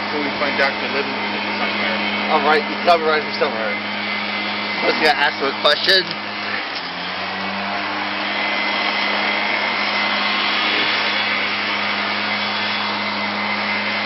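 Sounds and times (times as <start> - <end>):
machine whirring with low hum: 0.0 - 14.0.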